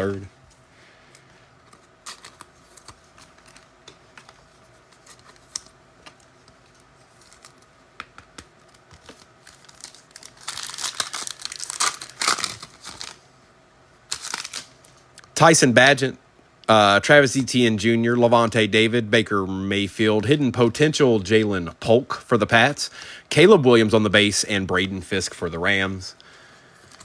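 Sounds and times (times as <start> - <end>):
foil pack crinkling and tearing: 1.8 - 3.7, 6.6 - 7.7, 8.6 - 13.2, 14.1 - 15.0.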